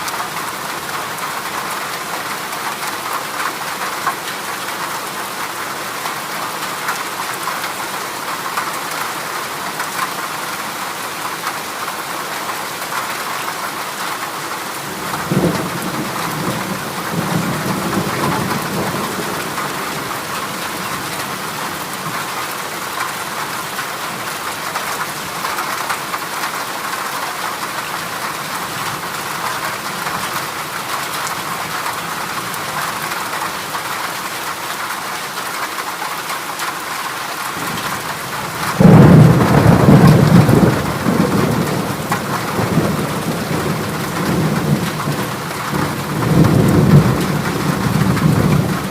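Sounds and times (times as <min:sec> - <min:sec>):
heavy rain on a metal roof: 0:00.0 - 0:48.9
thunder rumbling: 0:37.6 - 0:48.9.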